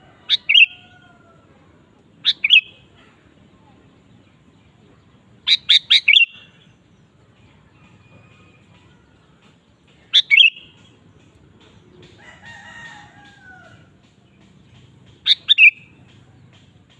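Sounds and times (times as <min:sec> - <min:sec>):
bulbul calling: 0:00.3 - 0:01.0, 0:02.2 - 0:03.2, 0:05.3 - 0:06.8, 0:10.0 - 0:12.2, 0:15.0 - 0:16.9.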